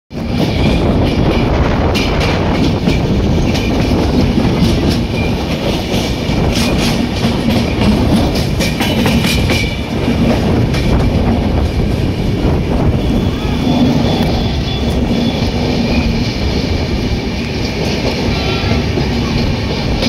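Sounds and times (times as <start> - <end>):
wheels clicking over rail joints: 0.1 - 12.4
train wheels rumbling on rail: 0.1 - 20.0.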